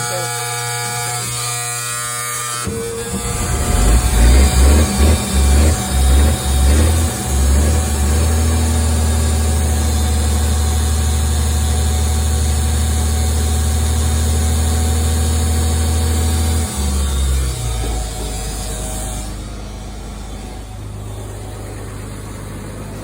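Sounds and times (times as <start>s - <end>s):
warning buzzer: 0.0s - 7.7s
truck engine idling: 2.7s - 23.0s.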